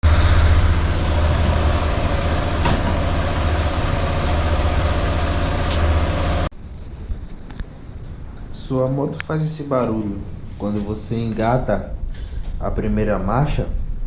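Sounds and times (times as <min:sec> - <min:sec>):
gear engaging clunk: 0:02.6 - 0:03.2.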